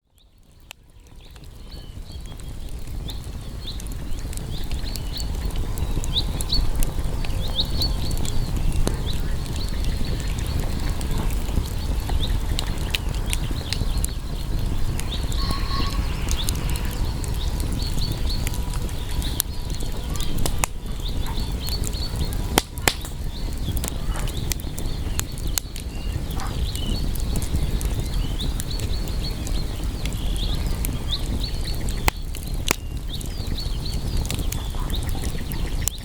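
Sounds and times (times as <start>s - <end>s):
campfire crackling and popping: 0.0s - 36.0s
faint high chirps: 7.3s - 22.5s.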